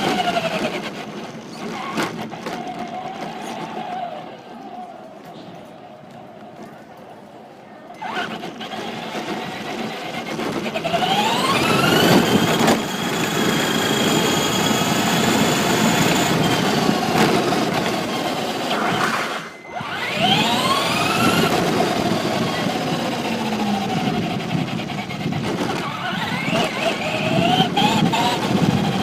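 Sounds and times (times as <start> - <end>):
tyres rolling on pavement: 0.0 - 29.0
electric motor whining: 8.0 - 29.0.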